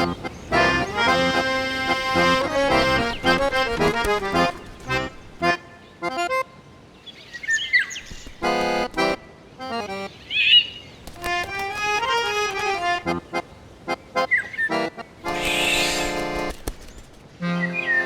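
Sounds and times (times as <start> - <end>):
bird chirping: 0.0 - 6.2, 7.0 - 13.4, 14.2 - 18.0
accordion music: 0.0 - 6.5, 8.2 - 10.2, 11.1 - 18.0.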